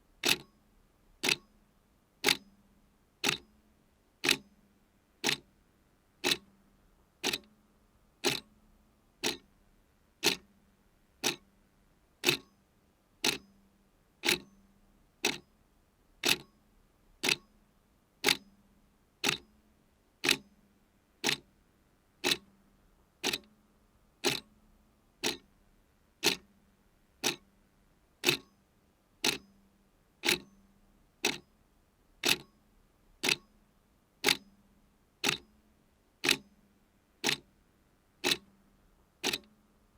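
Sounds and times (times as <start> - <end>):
clock ticking: 0.2 - 0.4, 1.2 - 1.4, 5.2 - 5.4, 6.2 - 6.4, 7.2 - 7.5, 8.2 - 8.5, 9.2 - 9.4, 10.2 - 10.4, 11.2 - 11.4, 12.2 - 12.4, 21.2 - 21.4, 22.2 - 22.4, 23.2 - 23.5, 24.2 - 24.5, 25.2 - 25.4, 26.2 - 26.4, 27.2 - 27.4, 28.2 - 28.5, 29.2 - 29.4, 30.2 - 30.5, 31.2 - 31.4, 32.2 - 32.5, 33.2 - 33.4, 34.2 - 34.4, 35.2 - 35.4, 36.2 - 36.4, 37.2 - 37.4, 38.2 - 38.5, 39.2 - 39.5.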